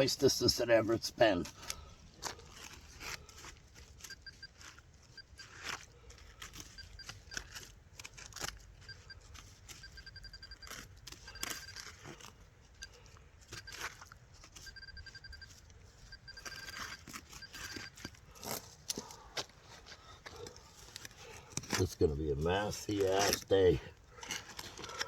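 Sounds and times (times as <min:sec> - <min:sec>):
digging in wet ground: 0:00.0 - 0:25.0
metal detector beeps: 0:04.0 - 0:05.7, 0:06.6 - 0:07.6, 0:08.8 - 0:14.0, 0:14.6 - 0:18.2.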